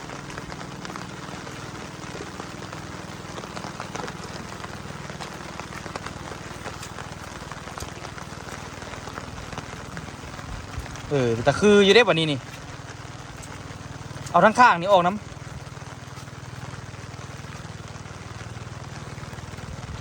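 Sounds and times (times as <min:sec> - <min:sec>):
low rumble: 0:00.0 - 0:14.4
rain drops ticking on surfaces: 0:00.0 - 0:20.0.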